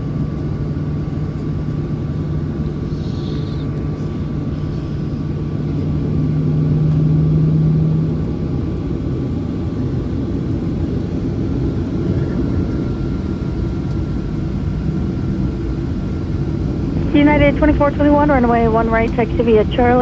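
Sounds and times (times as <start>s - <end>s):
airplane cabin rumble: 0.0s - 20.0s
low hum: 13.8s - 20.0s
faint high steady tone: 17.0s - 20.0s.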